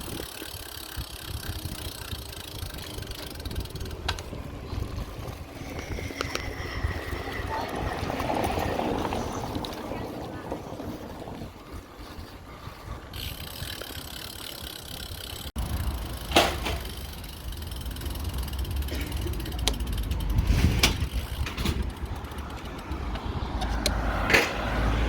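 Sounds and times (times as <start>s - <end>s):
bicycle freewheel ratcheting: 0.0s - 9.7s, 13.1s - 24.1s
wind on microphone: 0.0s - 15.2s.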